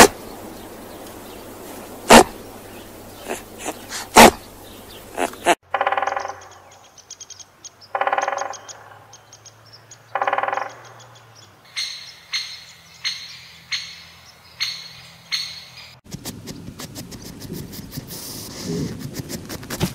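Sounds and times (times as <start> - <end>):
woodpecker trilled churr calls: 2.1 - 16.0
woodpecker sharp high notes: 5.2 - 6.8, 8.0 - 9.1, 10.2 - 11.1, 11.7 - 16.0.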